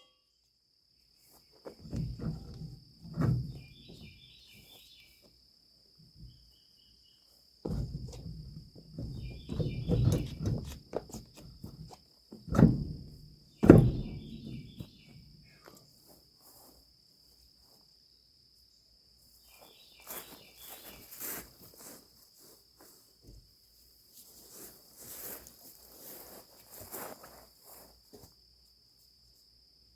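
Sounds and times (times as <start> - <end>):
high insect trill: 0.0 - 29.9
handling clicks and rustles: 1.6 - 4.7, 7.7 - 15.9
heavy thumps: 1.8 - 4.2, 7.6 - 15.5.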